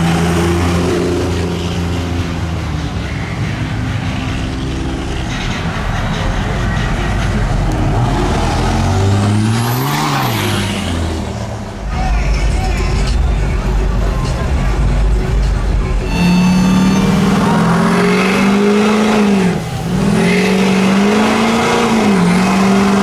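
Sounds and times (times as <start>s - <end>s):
engine revving: 0.0s - 23.0s
high whine: 0.0s - 23.0s
truck engines running: 0.0s - 23.0s.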